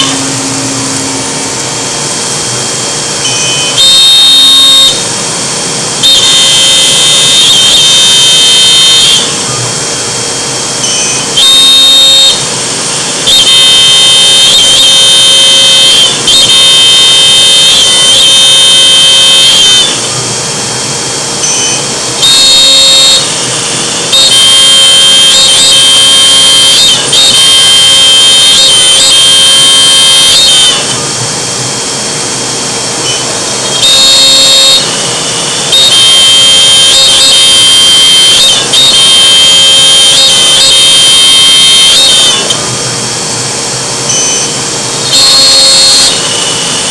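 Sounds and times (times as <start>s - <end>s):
router spindle whine: 0.0s - 46.9s.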